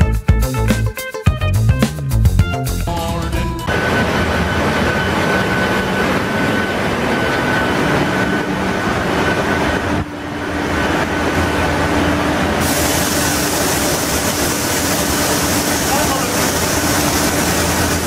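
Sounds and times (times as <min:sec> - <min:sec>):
engine room machinery din: 0:02.9 - 0:18.0
constant whining tones: 0:03.7 - 0:12.6.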